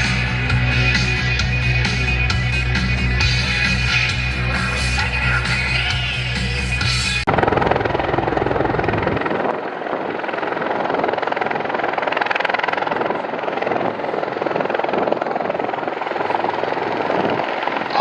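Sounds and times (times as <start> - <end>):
aircraft engine and propeller: 0.0 - 18.0.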